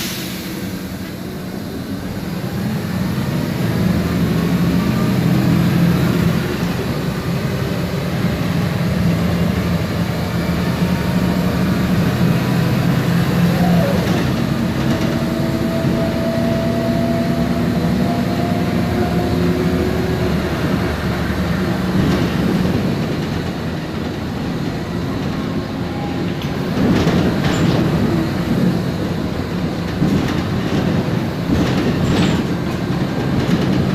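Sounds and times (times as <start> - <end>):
bus engine droning: 0.0 - 33.9
knocks and rattles: 26.5 - 28.1, 29.7 - 33.9.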